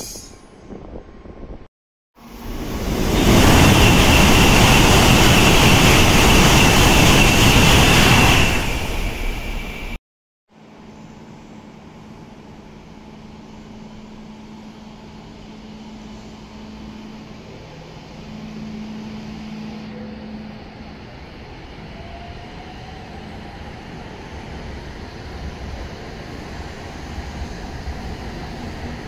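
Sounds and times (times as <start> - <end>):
train cars rumbling past: 0.0 - 10.0
train low hum: 0.0 - 29.0
faint rising whine: 10.7 - 24.1.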